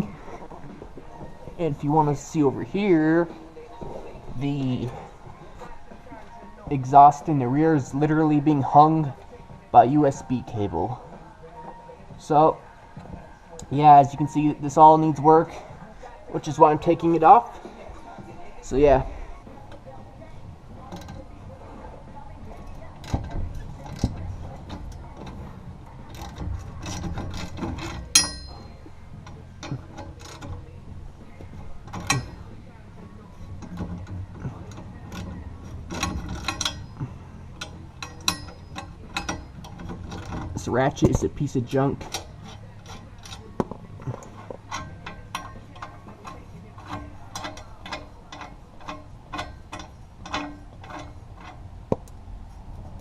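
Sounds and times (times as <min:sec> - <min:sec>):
ringing metallic clank: 0:26.1 - 0:28.9, 0:31.9 - 0:32.6, 0:35.1 - 0:41.3.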